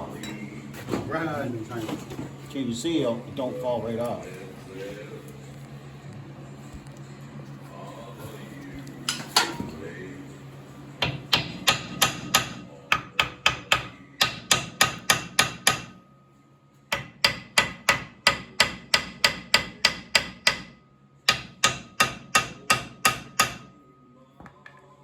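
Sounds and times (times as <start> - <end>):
hammer striking steel hub: 11.0 - 16.0, 16.9 - 23.8.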